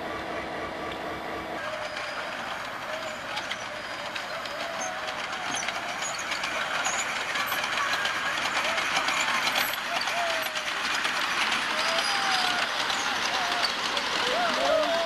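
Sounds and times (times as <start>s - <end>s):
diesel locomotive engine rumble: 0.0s - 15.0s
miniature train clicking on track: 1.6s - 15.0s.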